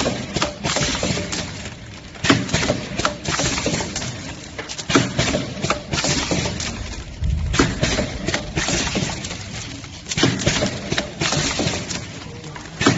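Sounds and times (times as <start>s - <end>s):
packaging machine clacks: 0.0s - 12.9s
mechanical rumble: 6.4s - 10.2s.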